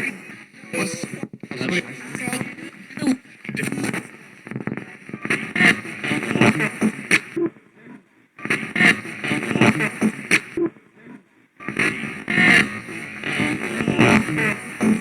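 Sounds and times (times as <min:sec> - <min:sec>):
radio broadcast fragments: 0:00.0 - 0:07.4, 0:08.4 - 0:10.6, 0:11.6 - 0:15.0
radio static: 0:00.0 - 0:07.4, 0:08.4 - 0:10.7, 0:11.6 - 0:15.0.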